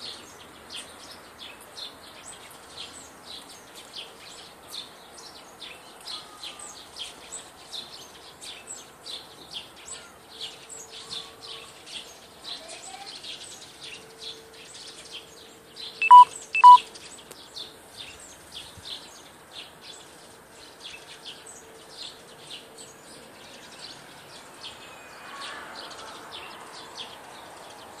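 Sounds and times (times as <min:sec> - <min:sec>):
small birds chirping: 0:00.0 - 0:28.0
loud short beeps: 0:16.0 - 0:16.8.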